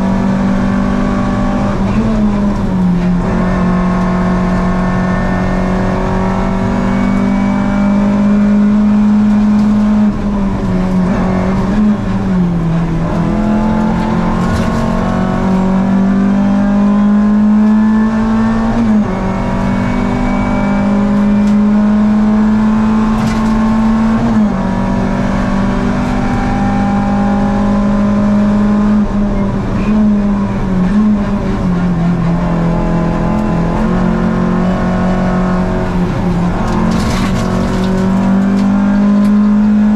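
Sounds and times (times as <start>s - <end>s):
car engine at high revs: 0.0s - 39.9s.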